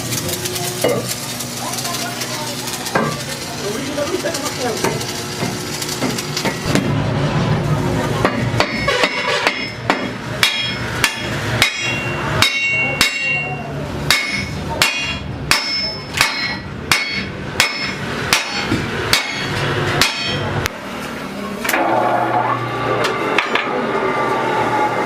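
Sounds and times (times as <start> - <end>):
hammer striking steel wheel rim: 8.2 - 20.6.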